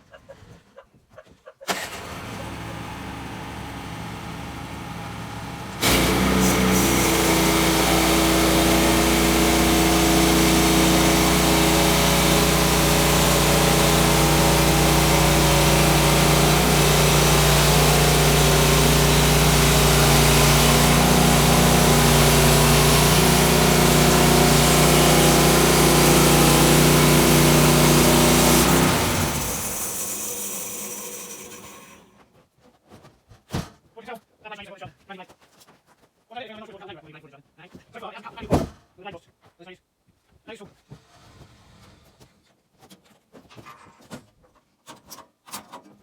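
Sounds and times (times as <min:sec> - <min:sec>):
sawmill engine cutting log: 0:01.7 - 0:32.1.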